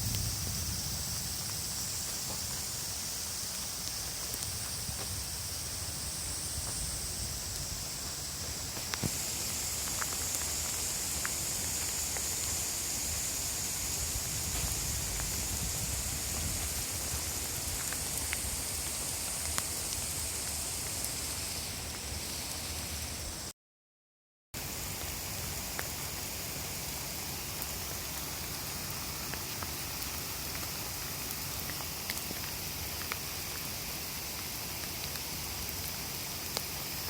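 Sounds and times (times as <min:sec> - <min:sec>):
heavy rain hissing: 0:00.0 - 0:23.5, 0:24.6 - 0:37.0.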